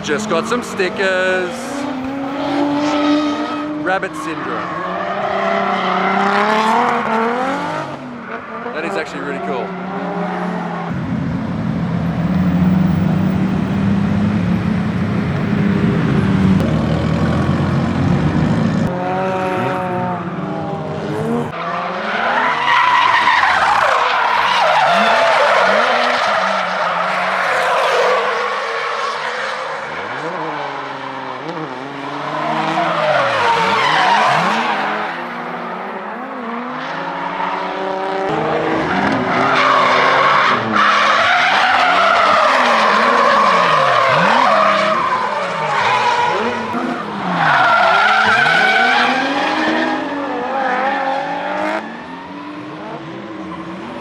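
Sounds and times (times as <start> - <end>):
car engines revving: 0.0 - 54.0
tyres screeching: 22.2 - 29.2, 38.3 - 50.2.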